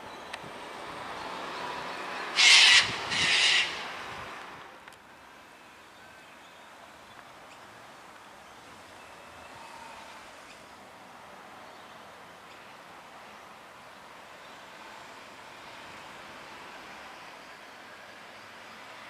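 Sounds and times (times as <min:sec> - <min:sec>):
harsh bird calls: 0:02.4 - 0:03.9.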